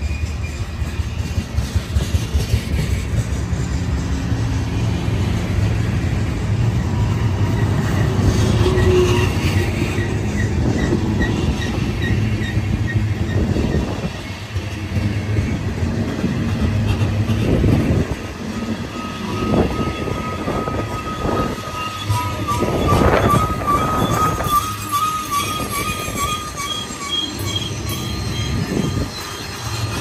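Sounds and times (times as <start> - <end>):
train rumbling past: 0.0 - 30.0
thin wheel squeal: 18.8 - 30.0.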